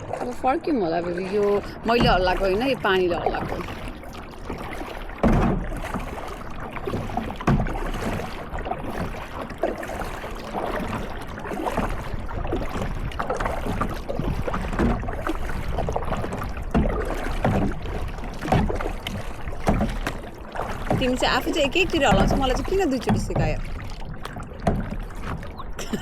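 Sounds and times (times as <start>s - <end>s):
paddles splashing in water: 0.0s - 26.0s.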